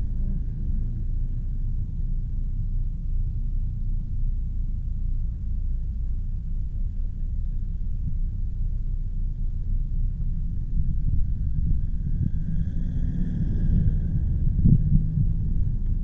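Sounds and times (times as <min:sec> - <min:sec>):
wind buffeting microphone: 0:10.0 - 0:16.0
tyre and road noise: 0:10.2 - 0:16.0.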